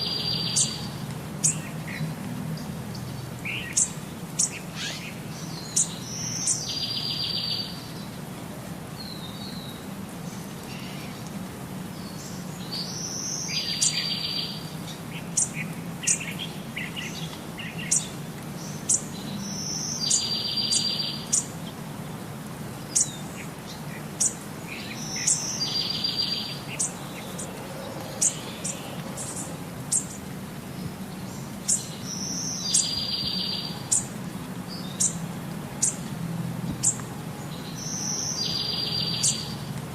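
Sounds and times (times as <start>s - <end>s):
songbird buzzy trill song: 0.0s - 8.2s, 12.0s - 39.9s.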